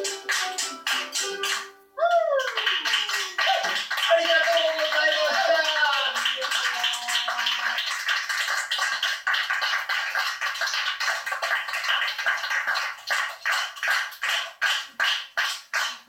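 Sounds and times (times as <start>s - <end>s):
acoustic band playing: 0.0s - 2.0s.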